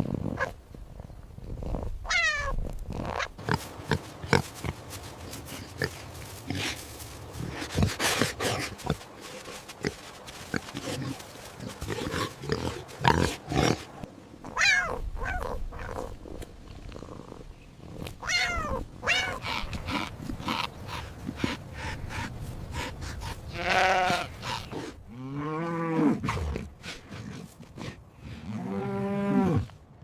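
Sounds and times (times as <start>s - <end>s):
animal bleating: 23.5s - 24.7s.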